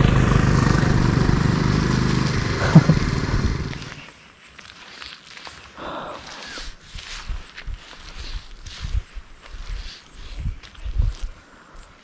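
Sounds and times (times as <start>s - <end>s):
motorcycle engine running: 0.0s - 4.0s.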